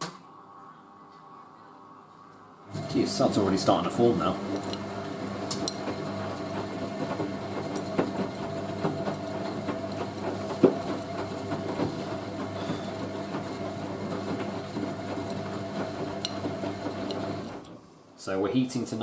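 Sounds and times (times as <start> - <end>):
washing machine motor hum: 2.7 - 17.8
drum clicks and knocks: 7.1 - 12.0.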